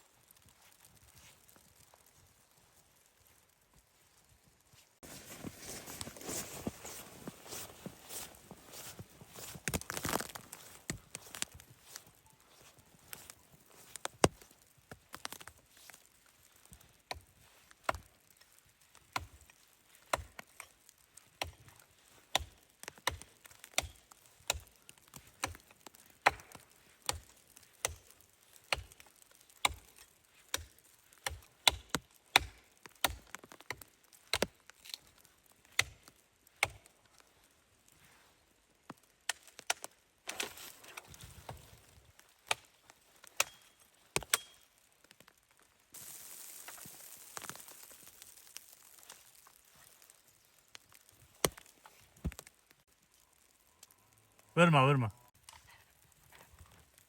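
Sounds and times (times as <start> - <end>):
wood being chopped: 9.6 - 11.6, 14.0 - 14.5, 22.3 - 34.5, 43.3 - 44.6, 51.0 - 52.5.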